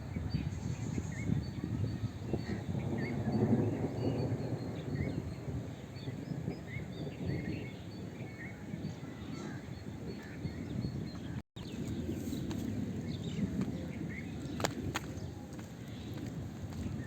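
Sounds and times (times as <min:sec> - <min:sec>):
small birds chirping: 0:00.0 - 0:17.0
wind buffeting microphone: 0:00.0 - 0:17.0.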